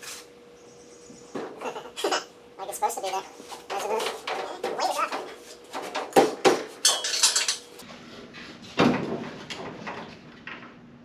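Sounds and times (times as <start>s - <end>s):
sheet metal clanks and knocks: 3.7s - 7.6s.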